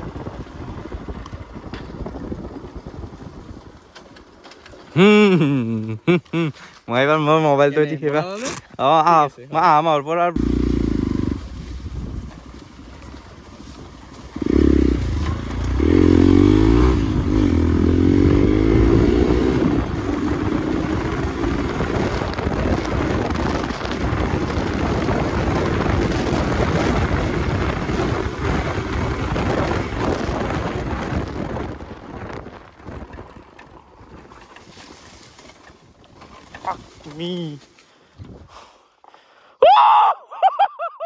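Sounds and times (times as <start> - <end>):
dirt bike engine revving: 10.4 - 31.1.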